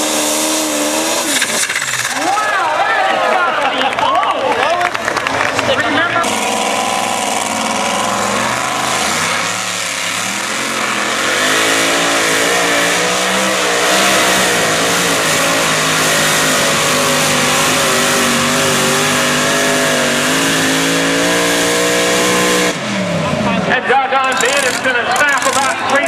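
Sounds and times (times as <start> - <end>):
tractor engine running flat out: 0.0 - 21.1.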